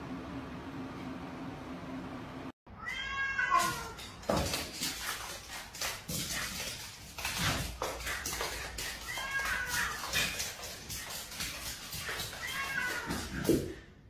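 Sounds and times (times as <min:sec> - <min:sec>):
cat meowing: 0:02.8 - 0:04.0, 0:08.9 - 0:10.3, 0:12.0 - 0:13.5.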